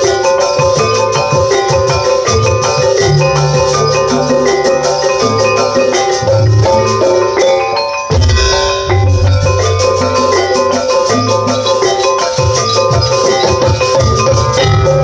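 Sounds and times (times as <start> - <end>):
metallophones playing quick notes: 0.0 - 15.0
steady drum beat: 0.0 - 15.0.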